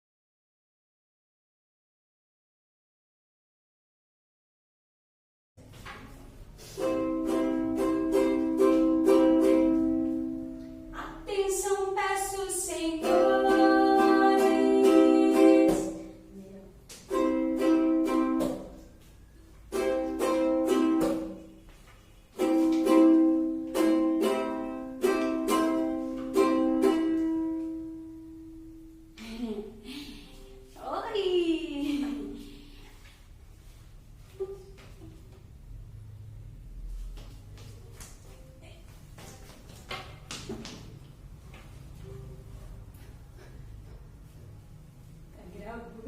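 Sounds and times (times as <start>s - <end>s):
ukulele strumming chords: 6.6s - 16.2s, 17.0s - 19.0s, 19.6s - 21.6s, 22.4s - 29.4s.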